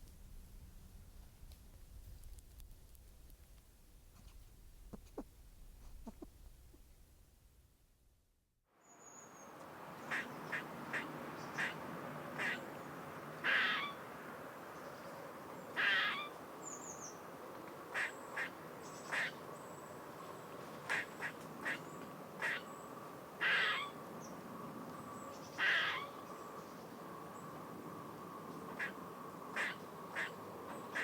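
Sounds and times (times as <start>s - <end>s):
faint outdoor background: 0.0s - 31.0s
duck quacking: 10.1s - 11.8s, 12.4s - 12.6s, 28.8s - 29.0s, 29.6s - 30.3s.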